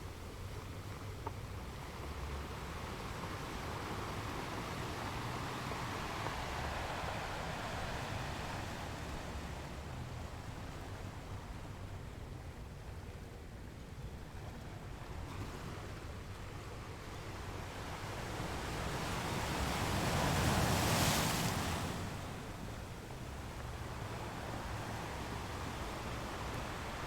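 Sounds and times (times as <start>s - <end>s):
ocean waves washing: 1.6s - 12.1s, 16.9s - 27.0s.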